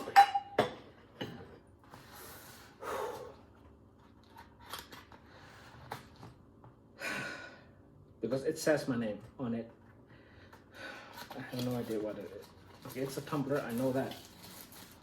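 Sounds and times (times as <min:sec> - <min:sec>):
box packaging rustling: 0:11.2 - 0:15.0
packaging swishing: 0:11.5 - 0:15.0.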